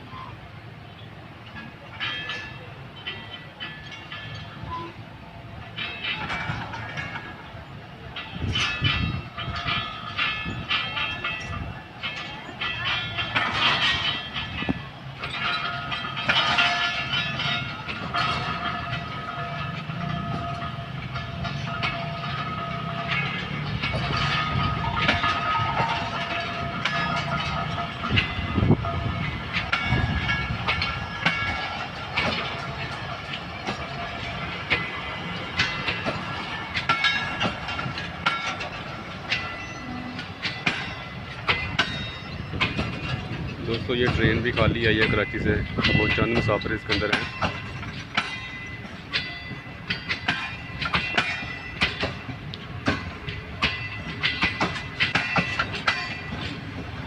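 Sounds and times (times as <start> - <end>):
faint high ringing from rails: 0.0 - 57.0
train rumbling on track: 0.0 - 57.0
wheels clicking over rail joints: 0.0 - 57.0.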